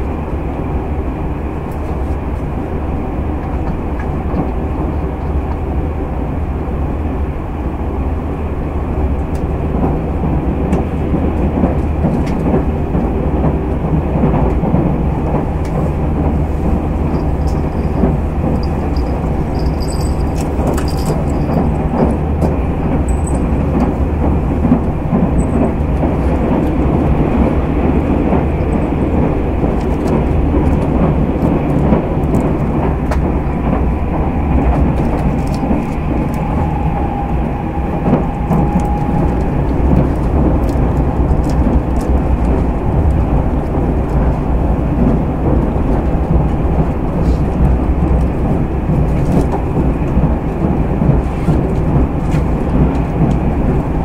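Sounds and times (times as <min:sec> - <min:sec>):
train wheels and motors rumbling: 0:00.0 - 0:54.0
wheels clicking over rail joints: 0:10.7 - 0:36.8.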